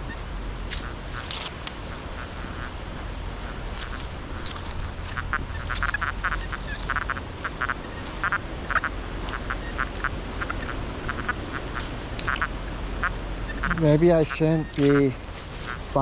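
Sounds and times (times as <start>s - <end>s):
wind rumbling on microphone: 0.0s - 16.0s
short nasal buzzy chirps: 5.1s - 13.9s.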